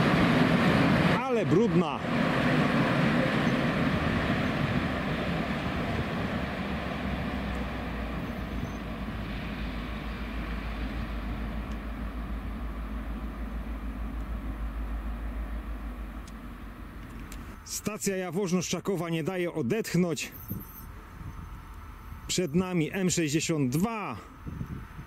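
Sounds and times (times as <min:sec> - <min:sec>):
train rolling noise: 0:00.0 - 0:19.0
low rapid pulsing: 0:00.0 - 0:25.0.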